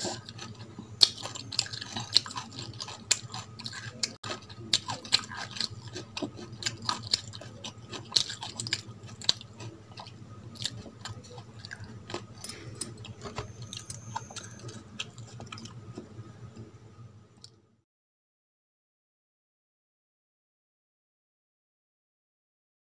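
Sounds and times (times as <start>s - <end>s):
person chewing wetly: 0.0s - 16.1s
low steady hum: 0.0s - 17.8s.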